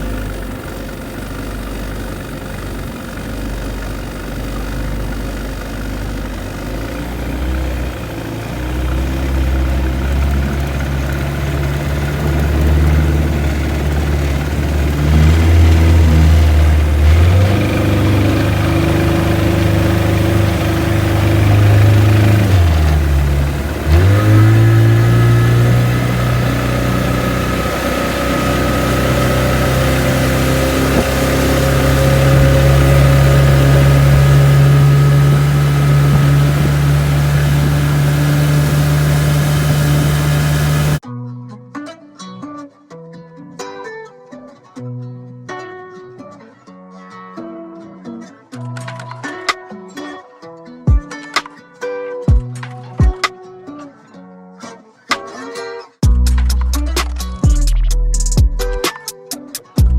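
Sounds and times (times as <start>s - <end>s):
outboard motor running: 0.0s - 41.0s.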